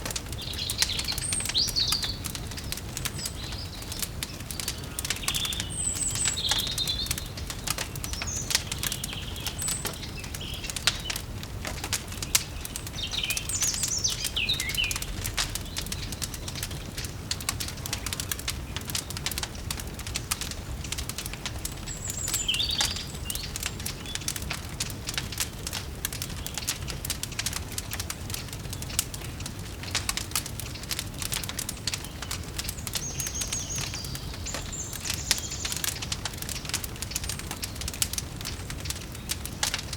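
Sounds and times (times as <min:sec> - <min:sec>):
small birds chirping: 0:00.0 - 0:39.9
wood fire crackling and popping: 0:00.0 - 0:39.9.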